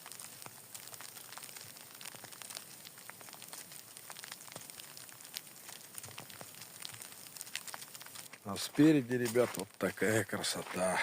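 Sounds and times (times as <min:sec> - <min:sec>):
raindrops ticking close by: 0:00.0 - 0:11.0
heavy rain hissing: 0:07.4 - 0:11.0.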